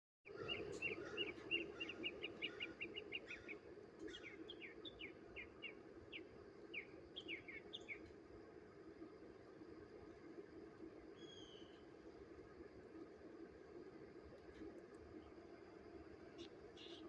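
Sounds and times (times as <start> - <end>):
small birds chirping: 0.3 - 8.1, 11.2 - 11.8, 16.4 - 17.0
steady low hum: 0.3 - 17.0.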